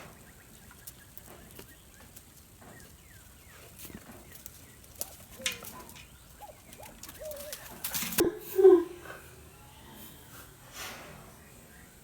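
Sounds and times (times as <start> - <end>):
birds chirping faintly: 0.0 - 10.0.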